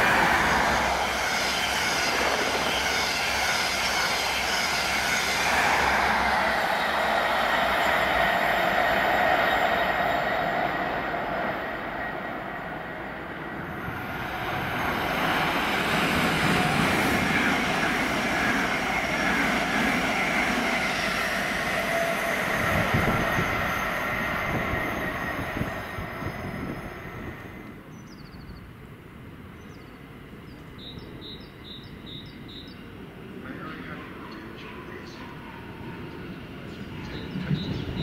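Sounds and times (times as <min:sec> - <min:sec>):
train wheels on rails: 0:00.0 - 0:27.8, 0:33.9 - 0:38.0
diesel train running away: 0:00.0 - 0:28.0, 0:30.1 - 0:38.0
electric train passing: 0:00.0 - 0:38.0.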